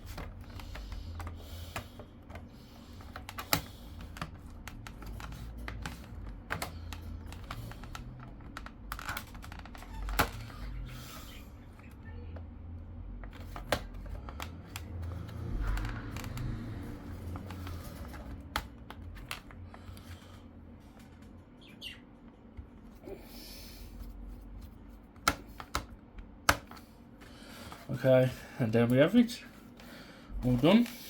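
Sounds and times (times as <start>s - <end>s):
low handling rumble: 14.0s - 19.9s.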